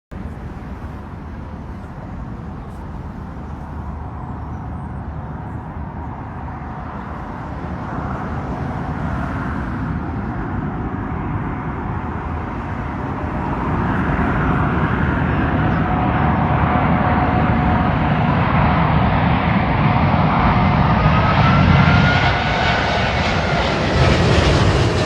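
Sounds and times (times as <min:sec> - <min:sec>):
jet engines rumbling: 0:00.1 - 0:25.0.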